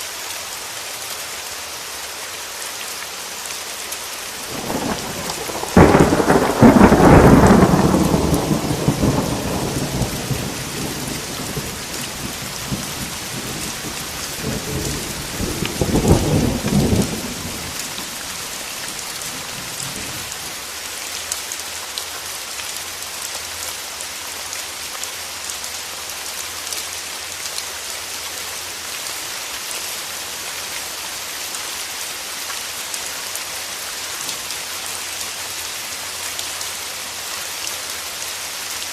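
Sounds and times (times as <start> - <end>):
steady rain falling: 0.0 - 38.9
thunder crack and rumble: 4.4 - 20.3.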